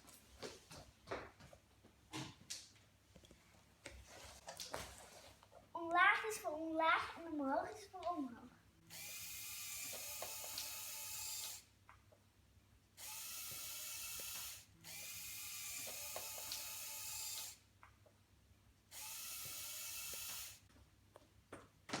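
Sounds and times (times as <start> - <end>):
toy electric motors whirring gears: 8.9 - 11.7, 13.0 - 17.6, 18.9 - 20.7.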